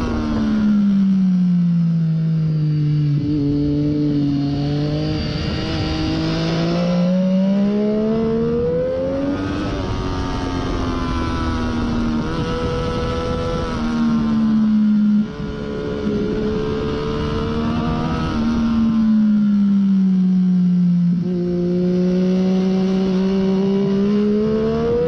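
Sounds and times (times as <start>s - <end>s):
motorcycle engine: 0.0s - 25.0s
wind rush: 7.9s - 14.5s.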